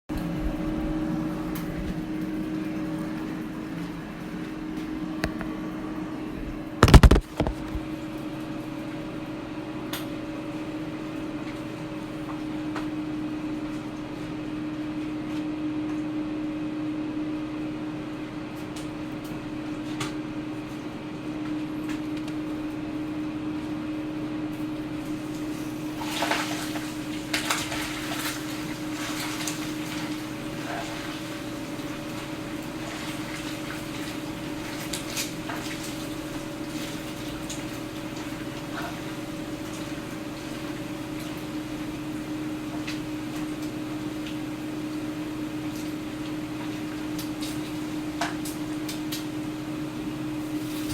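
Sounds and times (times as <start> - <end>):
air fryer fan hum: 0.1 - 50.9.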